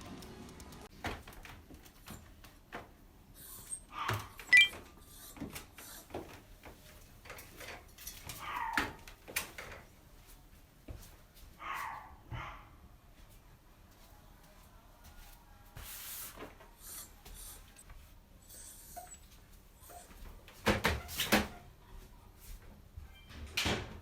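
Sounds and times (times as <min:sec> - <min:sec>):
dog barking: 0:08.4 - 0:09.0, 0:11.6 - 0:12.8.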